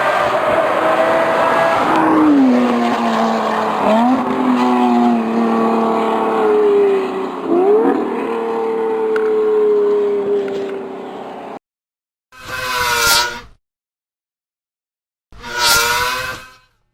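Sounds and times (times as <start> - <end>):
engine revving through loud exhaust: 0.0 - 11.6.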